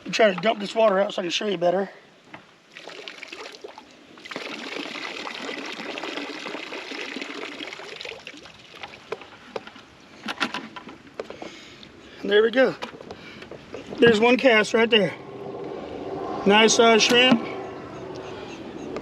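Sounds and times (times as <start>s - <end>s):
water pouring from container: 2.7s - 9.4s.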